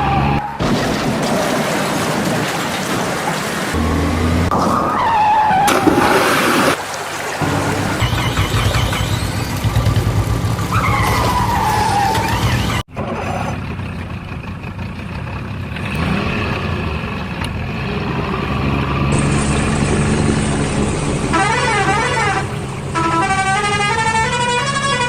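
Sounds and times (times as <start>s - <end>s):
engine drone: 5.7s - 25.0s.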